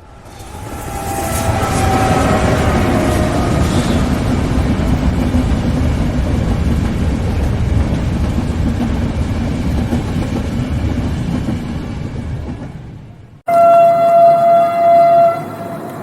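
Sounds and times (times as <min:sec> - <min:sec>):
train wheels rumbling on rails: 0:00.0 - 0:13.5
train horn: 0:00.3 - 0:04.2, 0:13.5 - 0:16.0.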